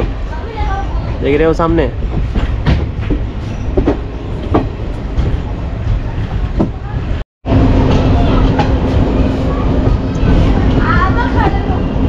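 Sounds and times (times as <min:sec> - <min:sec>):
train rumbling: 0:00.0 - 0:12.0
steady hum: 0:02.3 - 0:11.1.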